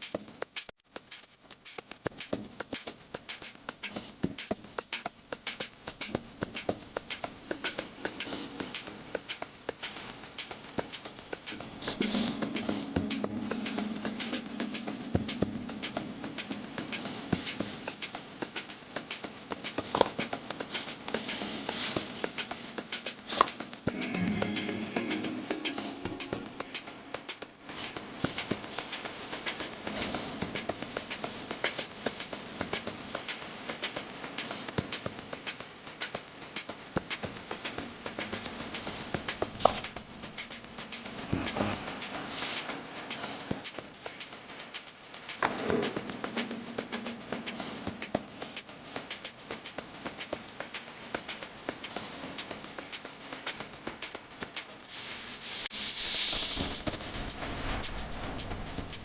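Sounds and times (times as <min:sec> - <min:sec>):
rapid tapping and clicking: 0:00.0 - 0:54.9
burst of hiss: 0:54.9 - 0:59.0.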